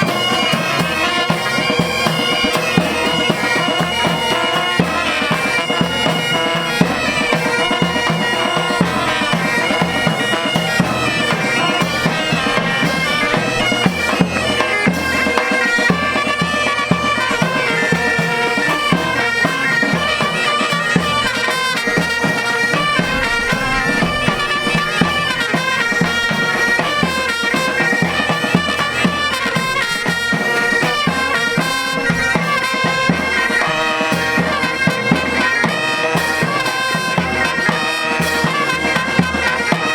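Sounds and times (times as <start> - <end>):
bagpipes playing melody: 0.0 - 39.9
drum beat: 0.0 - 39.9.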